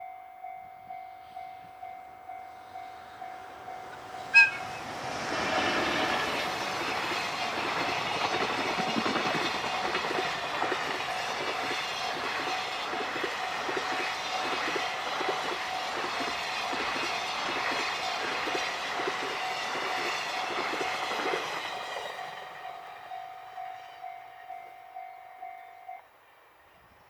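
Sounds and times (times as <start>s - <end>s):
freight train passing: 0.0s - 27.0s
train horn blast: 3.8s - 6.5s.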